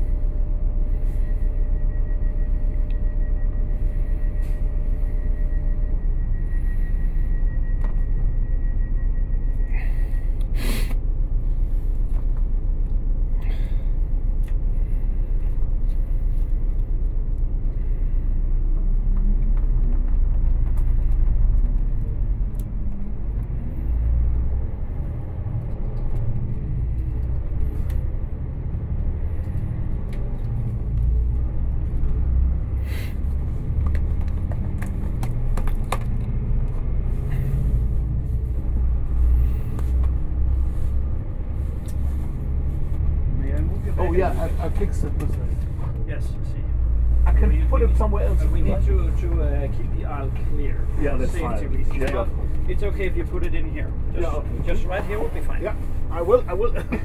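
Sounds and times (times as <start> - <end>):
passenger train rumble from inside: 0.0 - 57.0.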